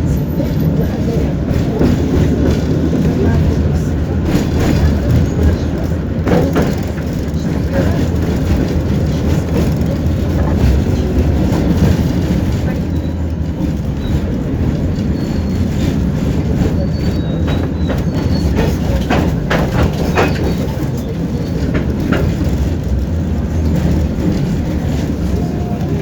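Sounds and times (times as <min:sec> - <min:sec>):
tram rumbling on track: 0:00.0 - 0:26.0
wheel clacks over rail joints: 0:00.3 - 0:26.0.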